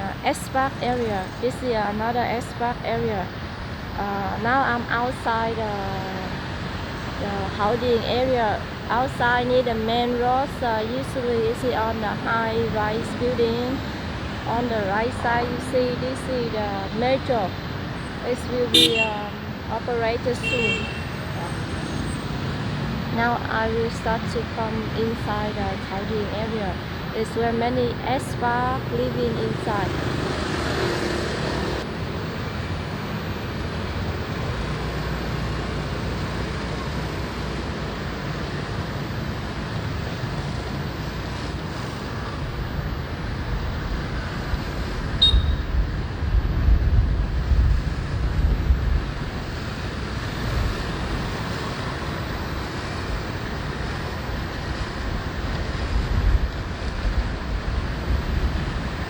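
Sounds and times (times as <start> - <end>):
road and traffic noise: 0.0 - 59.0
wind buffeting microphone: 44.6 - 49.4.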